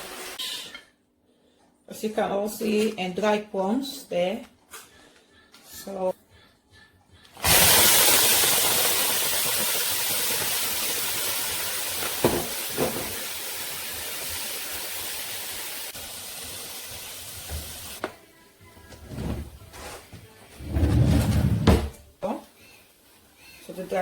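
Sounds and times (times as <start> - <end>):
food sizzling in a hot pan: 7.4 - 18.0.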